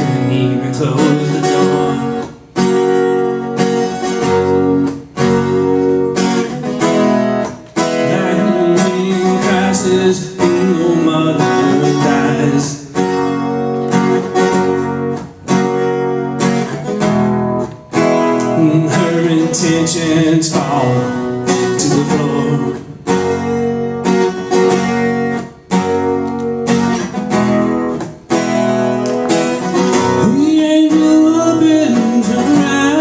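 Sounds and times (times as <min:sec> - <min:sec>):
acoustic guitar strumming chords: 0:00.0 - 0:33.0.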